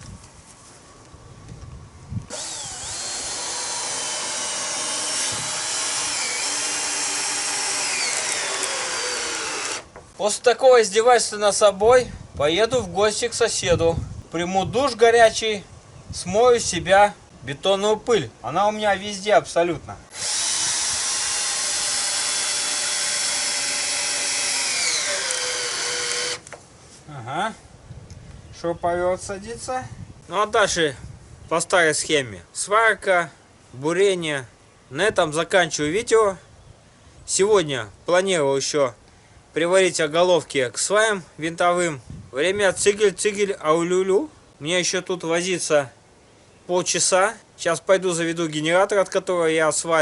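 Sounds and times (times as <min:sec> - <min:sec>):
electric drill motor whine: 0:02.3 - 0:09.9, 0:20.1 - 0:26.5.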